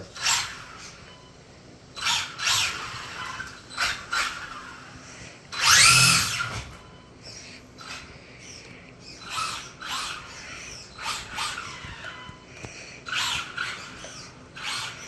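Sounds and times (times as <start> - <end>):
electric motor whining: 2.0 - 6.9.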